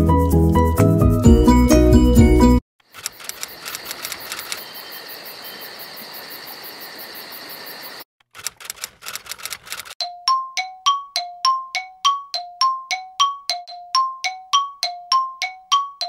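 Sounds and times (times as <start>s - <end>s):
rapid mechanical clicking: 2.9s - 4.6s, 8.2s - 10.0s
small mechanism whirring: 2.9s - 4.6s, 8.3s - 10.0s
sharp clicks: 2.9s - 4.7s, 8.2s - 10.0s.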